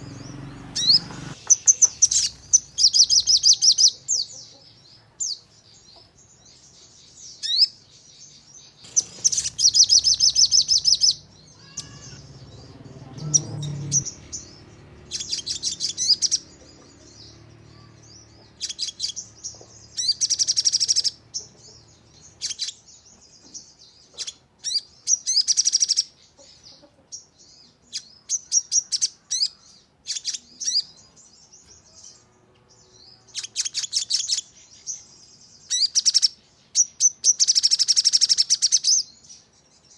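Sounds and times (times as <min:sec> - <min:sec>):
songbird rapid repeated notes: 0:00.0 - 0:03.9, 0:08.8 - 0:11.3, 0:13.1 - 0:16.6
short sharp bird chirps: 0:00.0 - 0:04.0, 0:08.8 - 0:12.2.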